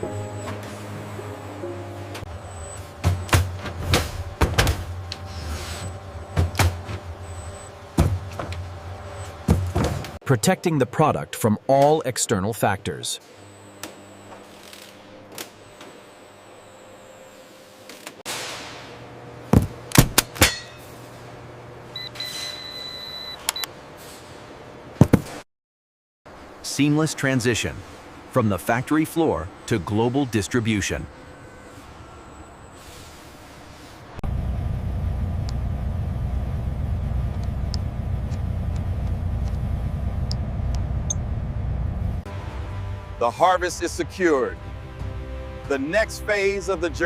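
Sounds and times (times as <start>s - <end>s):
low hum: 0.0s - 10.2s, 34.2s - 45.7s
vehicle engine rumble: 2.1s - 10.2s, 31.1s - 43.2s.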